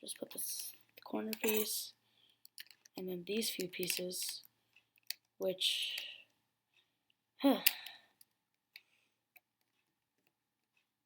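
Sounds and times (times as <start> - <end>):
plastic pieces clicking: 2.4 - 6.0
person sighing: 7.4 - 8.1.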